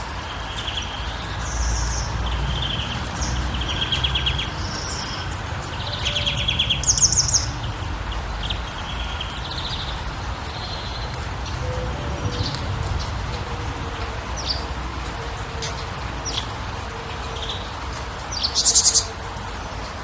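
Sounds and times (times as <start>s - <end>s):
songbirds trilling and chirping: 0.0s - 20.0s
low rumble: 2.1s - 16.6s.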